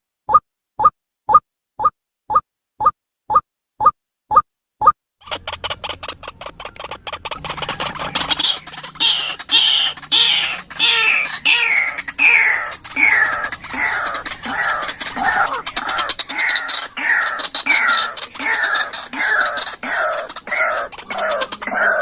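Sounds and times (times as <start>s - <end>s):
waterhen harsh calls: 5.2s - 22.0s.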